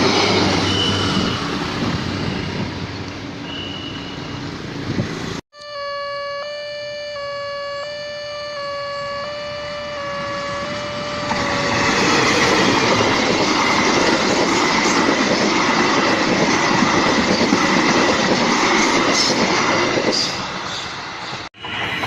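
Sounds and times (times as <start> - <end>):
level crossing warning chime: 5.6 - 11.8
high steady screech: 5.6 - 13.1
train wheels clattering on rails: 11.7 - 22.0.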